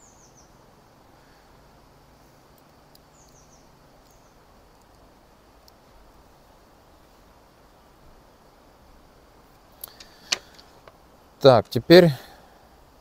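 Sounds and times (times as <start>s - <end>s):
small bird chirps: 0.0s - 1.4s, 2.5s - 5.0s
faint background hiss: 0.0s - 13.0s
faint ticks: 2.1s - 6.2s, 9.5s - 11.0s.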